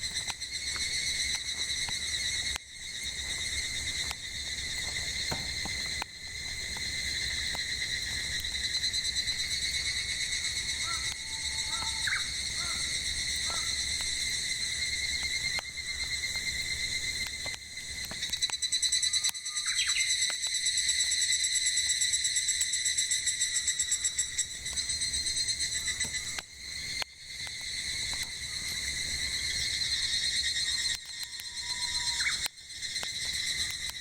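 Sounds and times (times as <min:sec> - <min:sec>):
wood fire crackling: 0:00.0 - 0:19.4, 0:23.9 - 0:34.0
cicadas singing: 0:00.0 - 0:34.0
bird call: 0:10.7 - 0:13.7, 0:18.9 - 0:20.2, 0:30.7 - 0:32.5.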